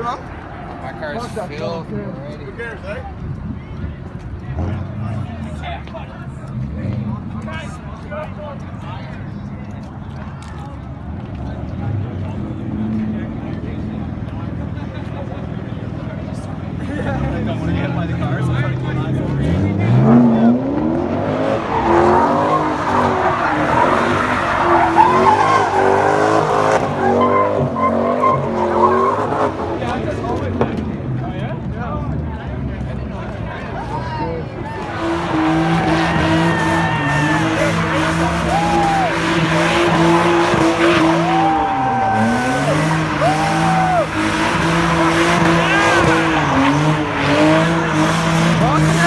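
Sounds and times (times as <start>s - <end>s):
car engine revving: 16.8s - 31.2s, 34.7s - 49.0s
tyres screeching: 34.8s - 49.0s.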